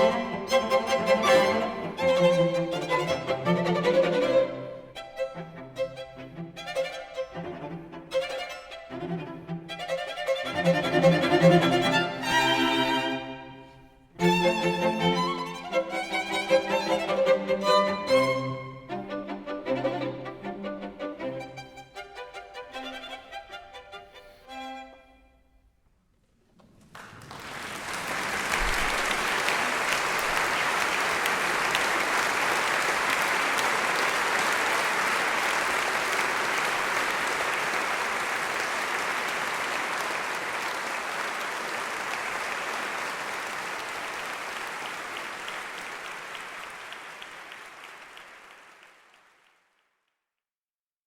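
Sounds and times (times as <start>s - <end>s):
audience applauding: 26.6s - 49.8s.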